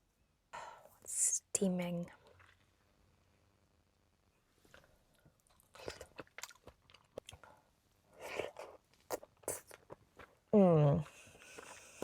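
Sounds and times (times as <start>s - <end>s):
wet chewing mouth clicks: 4.7s - 7.5s, 8.2s - 10.4s.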